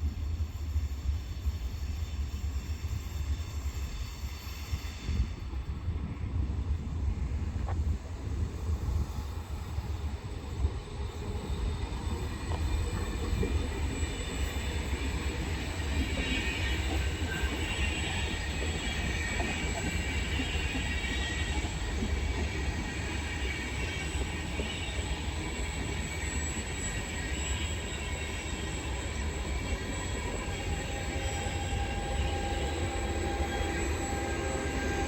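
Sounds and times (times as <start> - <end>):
train rumbling: 0.0 - 35.0
wheel squeal: 10.6 - 35.0
thin high whine: 23.3 - 35.0.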